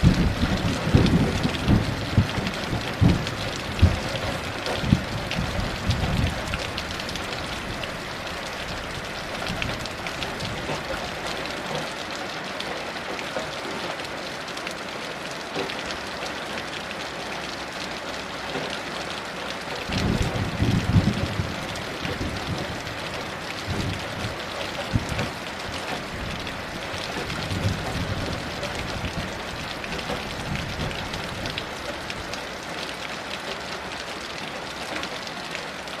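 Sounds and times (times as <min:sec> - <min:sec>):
low thunder rumbling: 0:00.0 - 0:11.3, 0:19.8 - 0:31.6
heavy rain falling: 0:00.0 - 0:36.0.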